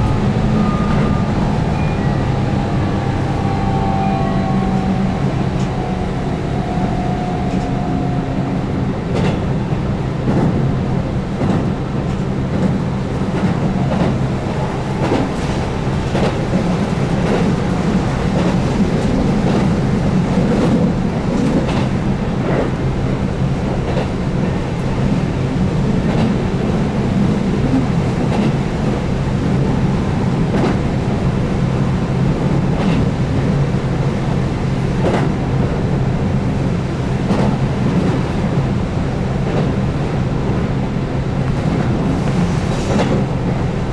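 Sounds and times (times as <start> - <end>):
electric train motor drone: 0.0 - 11.2.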